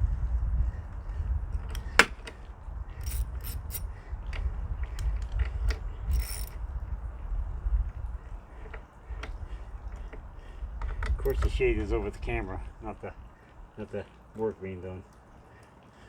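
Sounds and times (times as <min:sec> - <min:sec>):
sharp metallic click: 0:03.0 - 0:03.8, 0:06.1 - 0:06.6
socket ratchet clicking: 0:03.0 - 0:03.8, 0:05.0 - 0:06.6.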